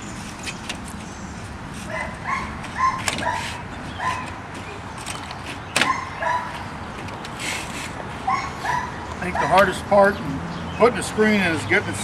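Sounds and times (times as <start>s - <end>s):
dog yipping: 1.9s - 4.4s, 5.8s - 6.6s, 8.3s - 9.6s.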